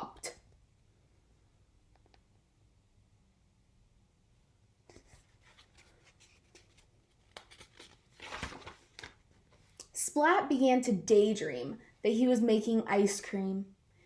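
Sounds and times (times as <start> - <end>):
page turning swish: 4.9 - 9.2
paper rustling: 4.9 - 9.7.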